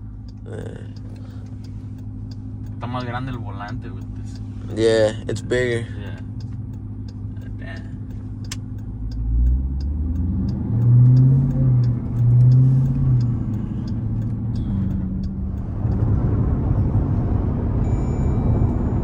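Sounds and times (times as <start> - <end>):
steady ticking: 0.0 - 16.9
car engine accelerating: 0.0 - 19.0.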